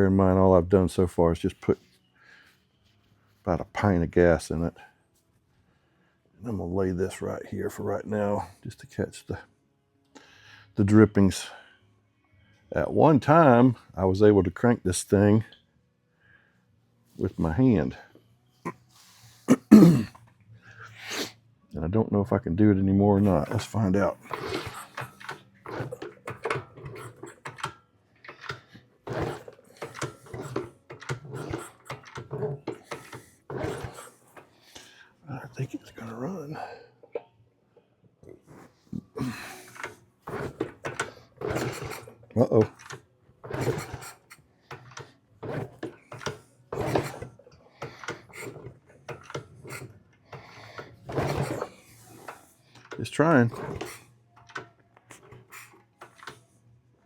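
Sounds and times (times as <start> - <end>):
small engine kick-start cranking: 23.3 - 34.5, 38.6 - 56.4.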